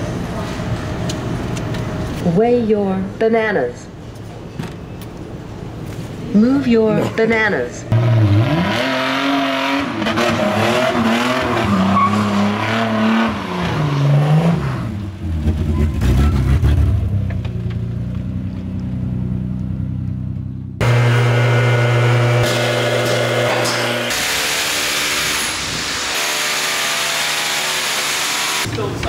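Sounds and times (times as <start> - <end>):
car engine revving: 7.9 - 28.7
steady motor hum: 20.8 - 28.7.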